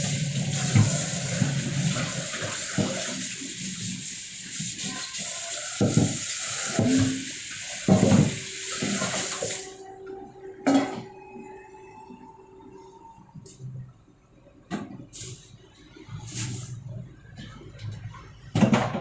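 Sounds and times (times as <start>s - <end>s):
tap water running into sink: 0.0s - 9.8s.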